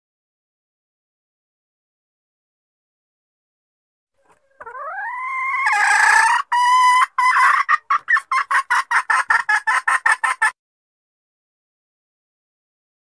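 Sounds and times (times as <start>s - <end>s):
hen calling and clucking: 4.2s - 10.6s.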